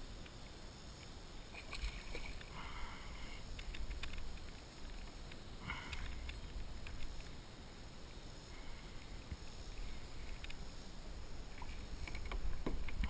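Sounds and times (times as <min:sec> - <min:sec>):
water noise: 0:00.0 - 0:13.0
faint clicks and knocks: 0:03.4 - 0:07.4, 0:09.0 - 0:10.6, 0:11.5 - 0:13.0.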